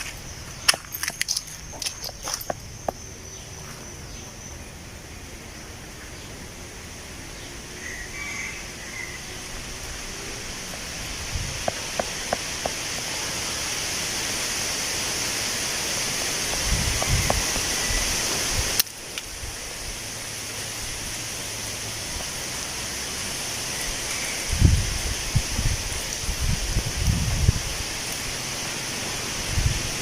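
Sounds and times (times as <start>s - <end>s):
wind rustling tree leaves: 0.0s - 30.0s
wind buffeting microphone: 10.4s - 13.1s, 16.4s - 18.8s, 24.4s - 28.0s, 29.3s - 30.0s.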